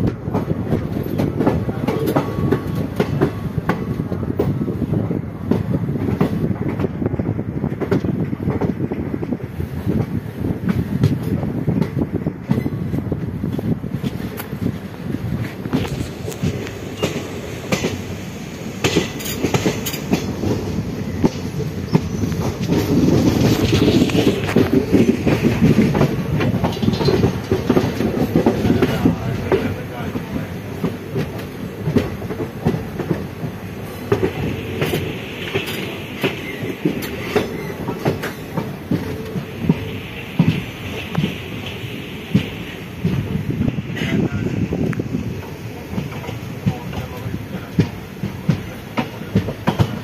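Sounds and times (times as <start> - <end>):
train running rumble: 0.0 - 50.0
wheels clicking over rail joints: 15.3 - 50.0.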